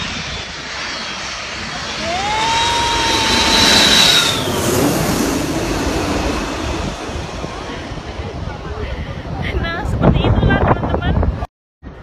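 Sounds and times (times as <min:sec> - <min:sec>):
jet airliner passing overhead: 0:00.0 - 0:11.4.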